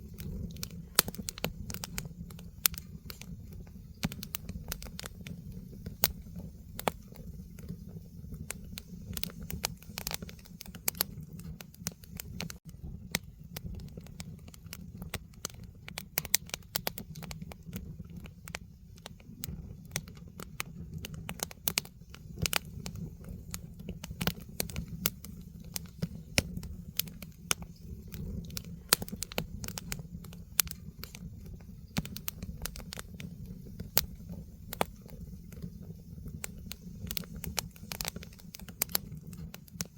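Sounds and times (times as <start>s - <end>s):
firewood crackling and popping: 0.0s - 39.9s
flames rumbling: 0.0s - 39.9s.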